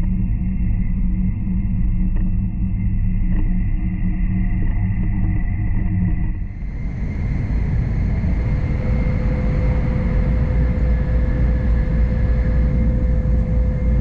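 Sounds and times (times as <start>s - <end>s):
faint constant hum: 0.0s - 14.0s
high-speed train running noise: 6.5s - 14.0s.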